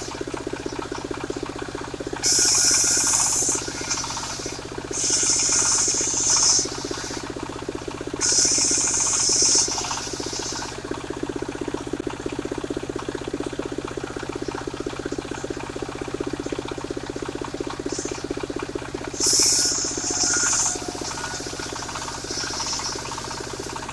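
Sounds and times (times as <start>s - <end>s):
engine running steadily: 0.0s - 23.9s
saw blade cutting wood: 2.2s - 7.4s, 8.2s - 10.8s, 19.2s - 23.9s.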